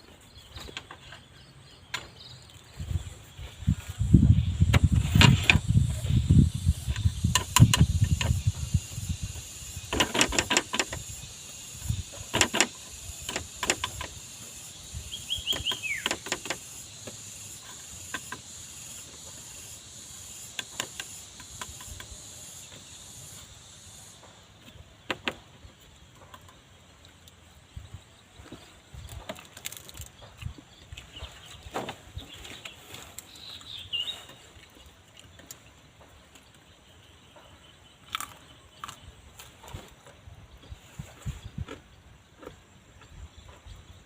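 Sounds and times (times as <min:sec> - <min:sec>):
high insect-like hiss: 0:02.2 - 0:44.0
sharp clicks and knocks: 0:06.9 - 0:08.4, 0:09.8 - 0:11.2, 0:12.2 - 0:14.2, 0:15.5 - 0:18.5, 0:20.5 - 0:22.2, 0:25.1 - 0:25.4.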